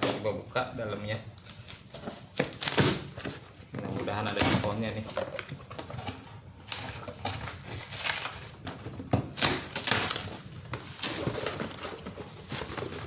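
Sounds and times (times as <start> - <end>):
cardboard rustling and crinkling: 0.0 - 13.0.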